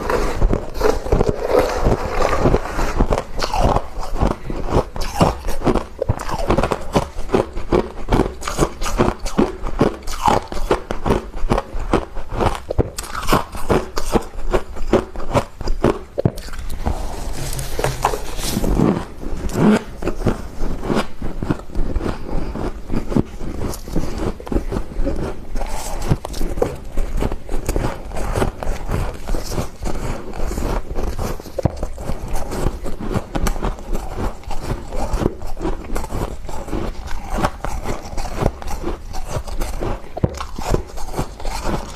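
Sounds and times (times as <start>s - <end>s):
crunching and chewing frost: 0.0s - 41.9s
scraping frost: 16.4s - 20.4s.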